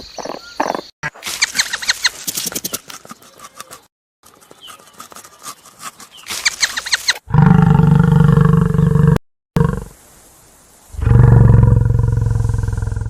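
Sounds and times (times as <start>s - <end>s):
low drawn-out animal roar: 7.3s - 10.0s, 11.0s - 13.0s.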